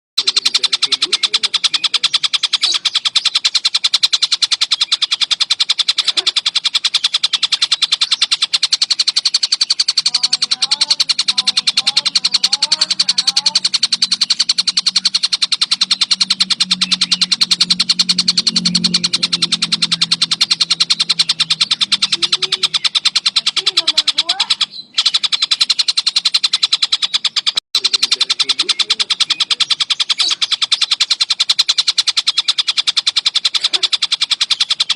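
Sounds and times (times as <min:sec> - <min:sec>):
short gliding bird calls: 0:00.2 - 0:34.9
songbird trilling: 0:00.2 - 0:34.9.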